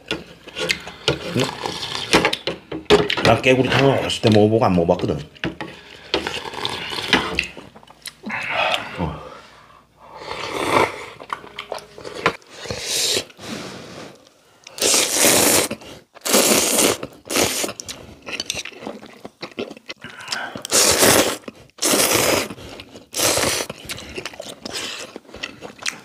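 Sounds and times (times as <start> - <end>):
people slurping noodles: 0.5 - 2.1, 5.9 - 7.6, 10.1 - 11.3, 12.5 - 14.2, 14.8 - 17.9, 20.0 - 25.2.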